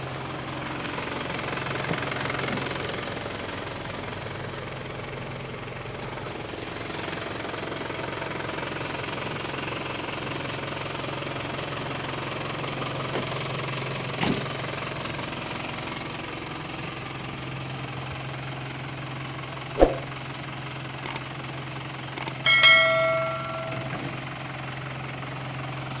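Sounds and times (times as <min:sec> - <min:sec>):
diesel engine idling: 0:00.0 - 0:26.0
metallic ringing clang: 0:22.5 - 0:24.2.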